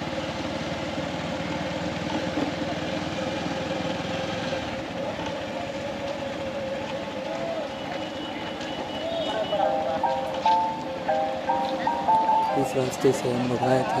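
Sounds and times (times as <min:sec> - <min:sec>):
motorcycle engine riding off: 0:00.0 - 0:07.4
road and wind noise: 0:00.0 - 0:14.0.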